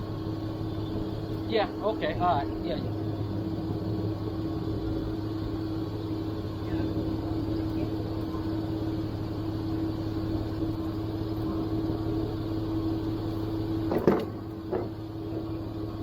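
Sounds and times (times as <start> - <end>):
vehicle engine idling: 0.0 - 16.0
metallic clanks: 13.9 - 15.5.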